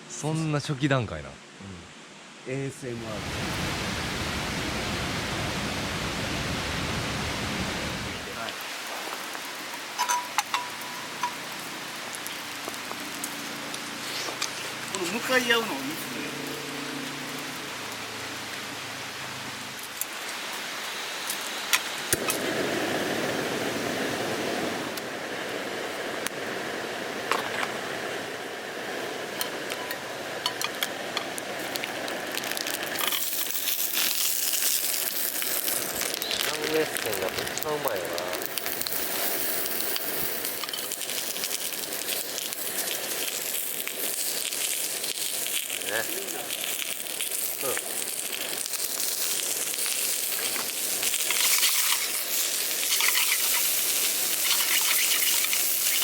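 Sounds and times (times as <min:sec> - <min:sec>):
sausages sizzling in a pan: 0:08.3 - 0:25.6, 0:27.9 - 0:56.0
crinkling and small clicks: 0:29.4 - 0:34.7.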